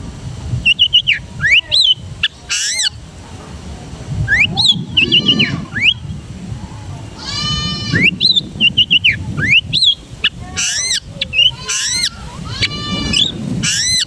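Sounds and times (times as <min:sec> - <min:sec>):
bird singing varied song: 0:00.6 - 0:03.0, 0:04.3 - 0:06.2, 0:07.9 - 0:14.0
harsh bleating bird call: 0:05.0 - 0:05.9, 0:07.1 - 0:08.2, 0:10.4 - 0:14.0.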